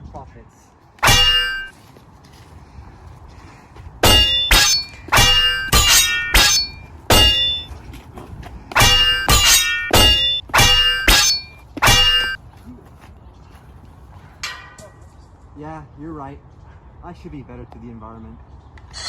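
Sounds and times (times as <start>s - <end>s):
metal striking metal: 1.0s - 1.7s, 4.0s - 7.7s, 8.7s - 12.4s.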